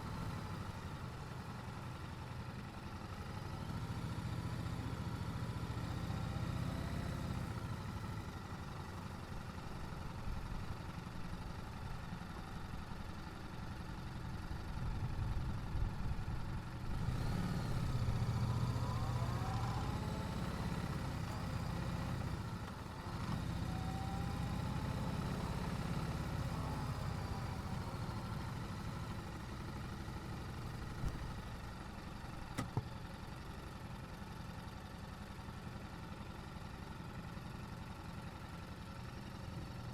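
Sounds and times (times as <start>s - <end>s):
motorcycle engine: 16.7s - 31.8s.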